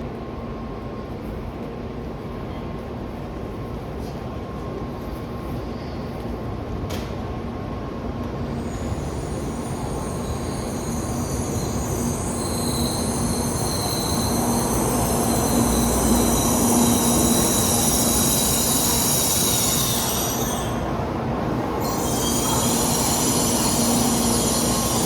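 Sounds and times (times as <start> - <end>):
train rumbling: 0.7 - 25.0
high-pitched whining squeal: 8.6 - 20.9, 21.8 - 25.0.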